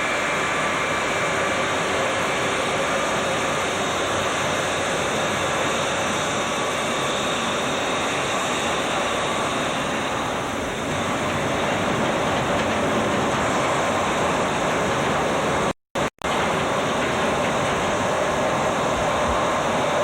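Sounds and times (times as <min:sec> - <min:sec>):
jet airliner engines running: 0:00.0 - 0:20.0.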